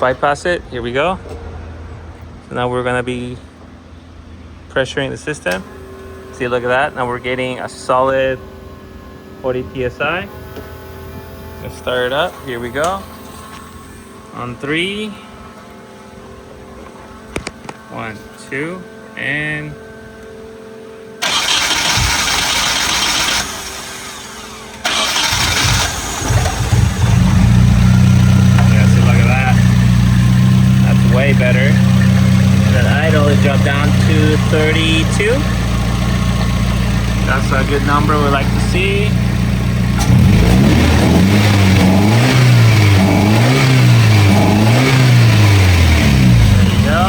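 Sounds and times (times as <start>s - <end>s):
car engine cranking and starting: 5.2s - 14.5s, 21.2s - 47.0s.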